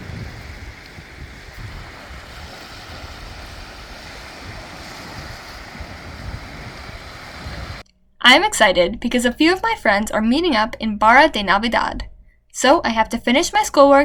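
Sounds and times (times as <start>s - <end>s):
waves hissing: 0.0s - 7.8s
wind buffeting microphone: 0.0s - 7.8s.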